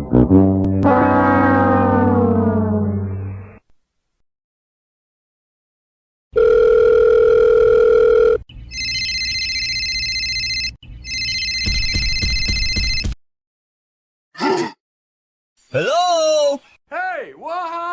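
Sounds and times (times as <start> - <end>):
telephone dial tone: 6.4 - 11.6
phone ringing electronically: 6.4 - 13.1.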